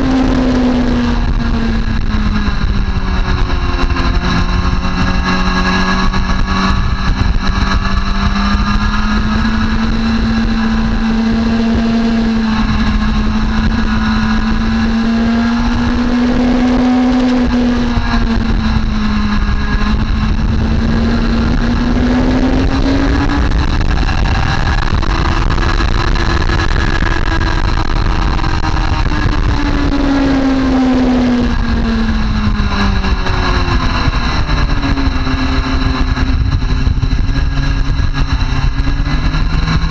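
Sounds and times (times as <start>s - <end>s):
motorcycle engine at speed: 0.0s - 39.9s
steady rushing noise: 0.0s - 39.9s.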